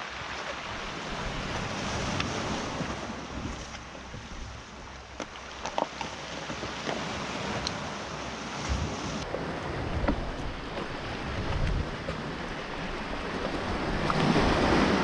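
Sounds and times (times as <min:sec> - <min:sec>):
sea waves washing: 0:00.0 - 0:15.0
wind on microphone: 0:06.3 - 0:15.0.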